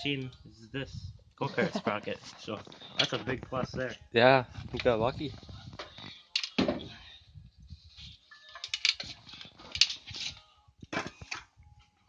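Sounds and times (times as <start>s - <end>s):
tools clicking and clattering: 6.3s - 6.6s, 8.6s - 10.3s.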